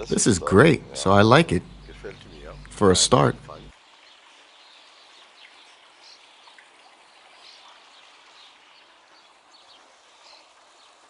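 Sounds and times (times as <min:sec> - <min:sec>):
steady hiss: 0:00.0 - 0:06.6
distant bird chirps: 0:00.0 - 0:11.0.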